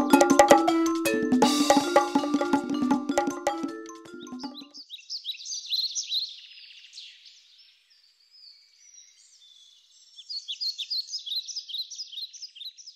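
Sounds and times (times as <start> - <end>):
small birds chirping: 4.2 - 12.9.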